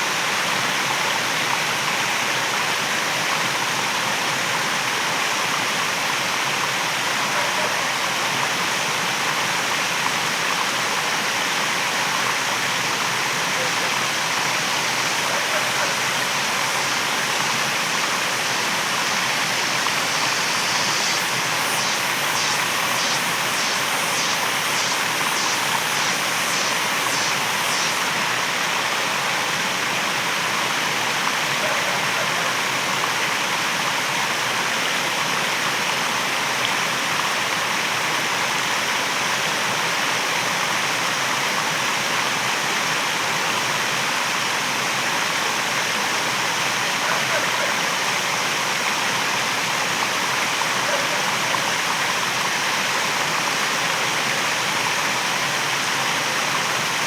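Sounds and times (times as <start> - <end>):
waterfall roaring: 12.0 - 29.2
high-pitched pulses: 14.4 - 28.2.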